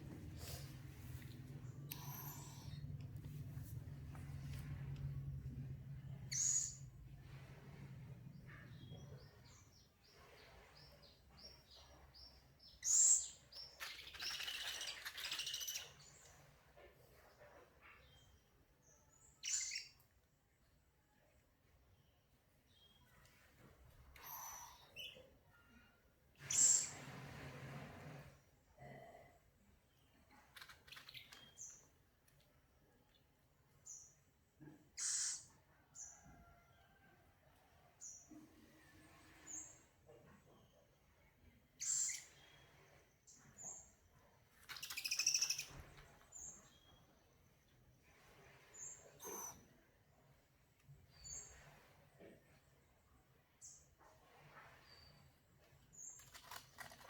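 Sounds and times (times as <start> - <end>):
baby owl chirping: 13.9 - 16.0, 44.8 - 45.7.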